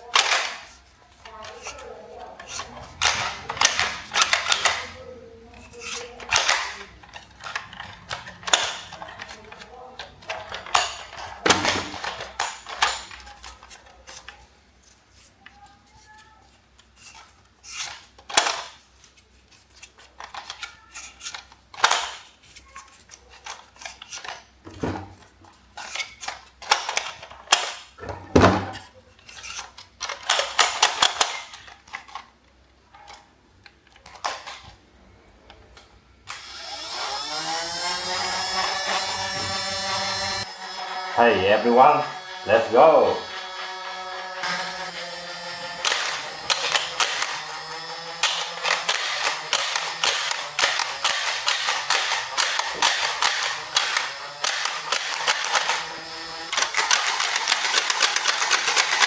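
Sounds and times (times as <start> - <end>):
plastic toys clicking: 0.0 - 24.6, 25.4 - 28.0, 28.7 - 34.8, 35.5 - 59.0
wavering electronic sound: 37.7 - 50.6.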